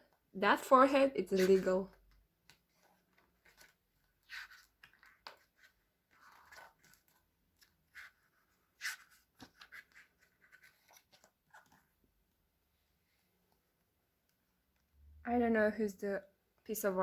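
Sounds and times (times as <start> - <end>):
paper pages rustling: 1.2 - 12.0.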